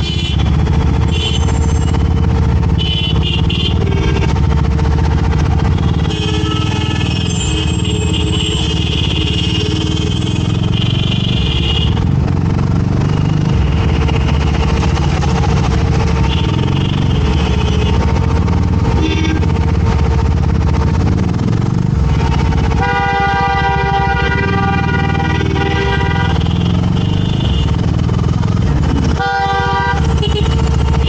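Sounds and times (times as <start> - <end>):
vehicle horns honking: 0.0 - 2.0, 2.6 - 4.6, 5.6 - 12.0, 15.4 - 18.3, 18.9 - 19.7, 22.7 - 27.9, 28.8 - 31.0
motorcycle engine running: 0.0 - 31.0
road and wind noise: 0.0 - 31.0.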